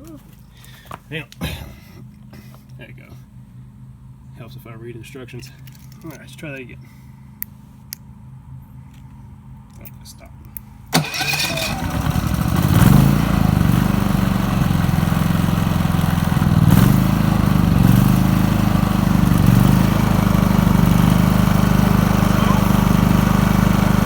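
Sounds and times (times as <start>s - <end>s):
generator engine running: 10.9s - 24.0s.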